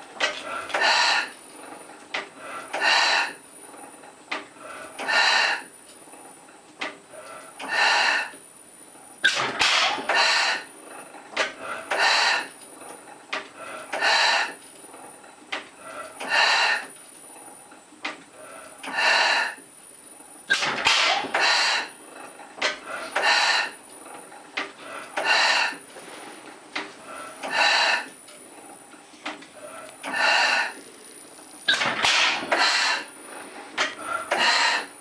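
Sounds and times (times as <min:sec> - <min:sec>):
gas engine hissing puffs: 0:09.2 - 0:10.7, 0:20.5 - 0:22.0, 0:29.6 - 0:30.8, 0:31.7 - 0:35.0.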